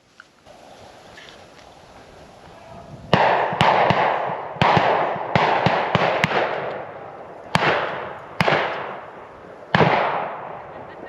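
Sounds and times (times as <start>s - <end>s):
shotgun shots echoing: 3.1s - 10.9s.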